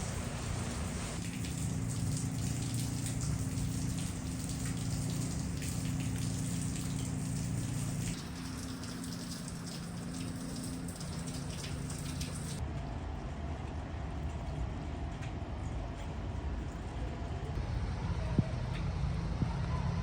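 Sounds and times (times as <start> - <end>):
rain pattering: 0.0 - 12.6
steady low hum: 0.0 - 12.6.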